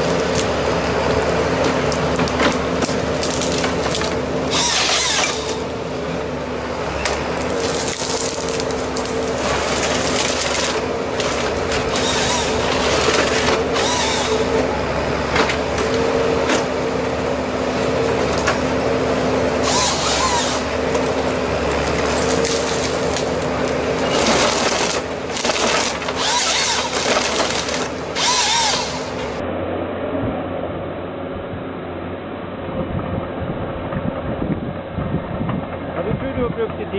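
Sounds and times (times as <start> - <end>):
engine-driven saw running: 0.0 - 29.4
saw cutting into wood: 3.3 - 5.7, 7.6 - 14.7, 19.6 - 20.8, 24.0 - 29.4.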